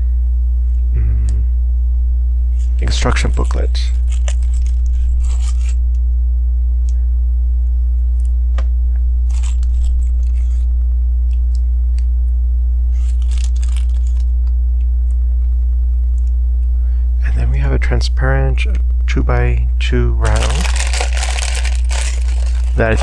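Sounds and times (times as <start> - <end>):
low hum: 0.0 - 17.3, 18.1 - 23.0
plastic rustling and crackling: 2.6 - 5.8, 20.2 - 23.0.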